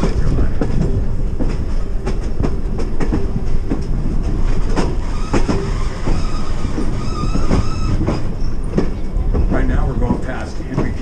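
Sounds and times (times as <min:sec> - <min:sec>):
train car rumbling on track: 0:00.0 - 0:11.0
high wheel squeal: 0:04.9 - 0:08.7.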